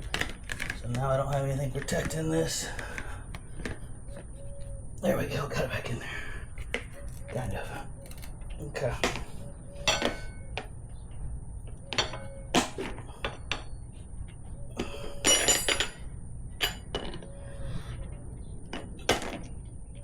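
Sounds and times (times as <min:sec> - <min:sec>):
tire irons clinking on wheel rim: 0:09.0 - 0:10.8, 0:11.7 - 0:13.9, 0:15.2 - 0:17.2.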